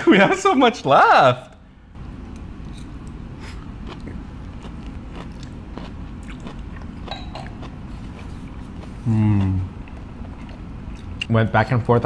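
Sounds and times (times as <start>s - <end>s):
low background hum: 0.0s - 12.0s
person chewing: 2.4s - 11.3s.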